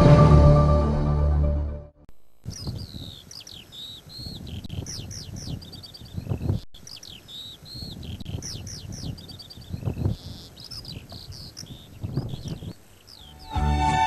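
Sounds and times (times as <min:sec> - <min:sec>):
music: 0:00.0 - 0:02.0, 0:13.4 - 0:14.0
songbirds chirping and whistling: 0:02.5 - 0:14.0.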